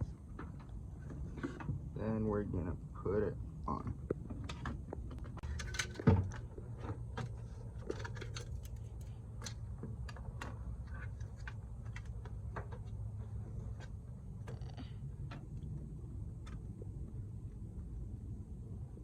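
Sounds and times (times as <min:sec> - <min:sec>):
steady low hum: 0:00.0 - 0:19.0
clicks and knocks of parts handled: 0:04.4 - 0:13.0.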